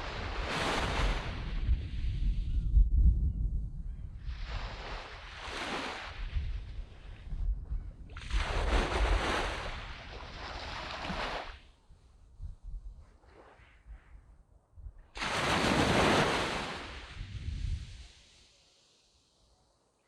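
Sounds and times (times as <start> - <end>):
waves washing on sand beach: 0.0 - 2.4, 4.2 - 7.3, 8.1 - 11.7, 15.2 - 19.2
wind rumble on microphone: 0.0 - 18.4.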